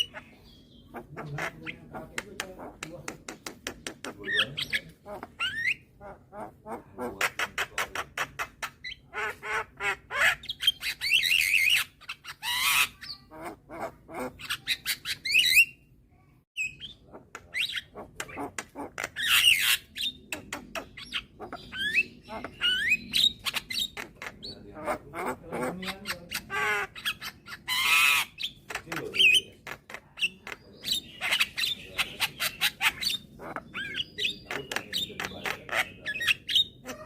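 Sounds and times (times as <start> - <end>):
myna bird singing: 0.0 - 37.0.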